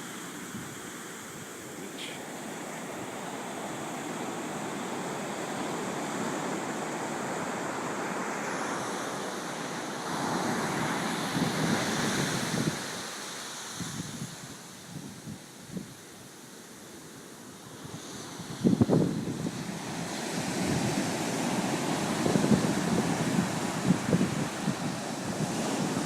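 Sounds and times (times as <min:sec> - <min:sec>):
wave surging in: 0:00.0 - 0:14.6
ocean surf washing on beach: 0:00.0 - 0:26.0
wind buffeting microphone: 0:10.5 - 0:13.0, 0:17.8 - 0:26.0.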